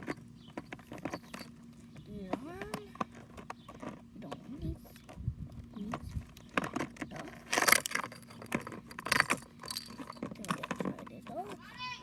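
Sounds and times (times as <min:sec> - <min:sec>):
toy pieces clicking and clattering: 0:06.6 - 0:10.9
toy pieces rattling: 0:07.3 - 0:10.9.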